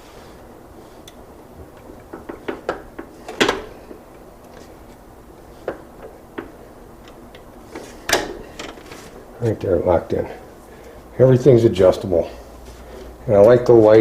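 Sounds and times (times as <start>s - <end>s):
saw stand parts clunking: 1.1s - 4.7s, 5.6s - 9.2s.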